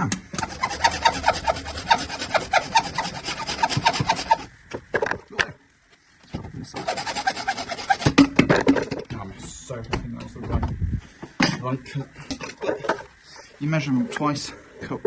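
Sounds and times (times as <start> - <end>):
hand saw cutting pipe: 0.3 - 4.5, 6.7 - 8.3.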